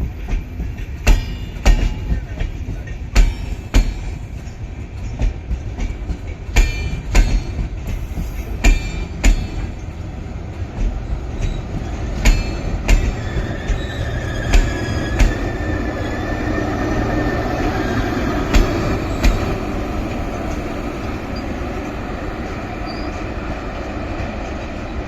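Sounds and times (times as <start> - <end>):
train wheels clacking on rails: 0.0 - 25.0
faint wheel squeal: 22.8 - 23.2.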